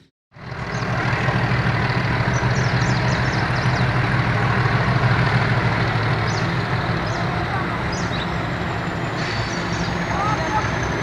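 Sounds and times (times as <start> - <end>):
diesel locomotive engine idling: 0.0 - 11.0.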